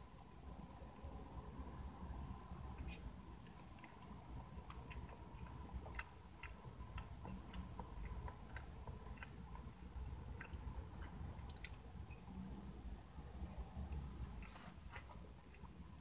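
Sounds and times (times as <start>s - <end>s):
person chewing pastry: 0.0s - 12.5s, 13.5s - 16.0s
faint high hum: 0.0s - 16.0s.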